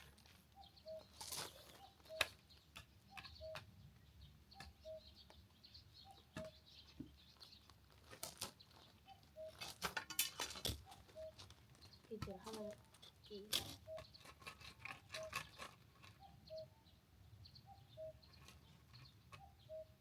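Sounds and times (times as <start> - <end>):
faint bird calling: 4.5 - 5.3, 10.8 - 11.5, 12.6 - 14.3, 17.6 - 18.7, 19.3 - 20.0.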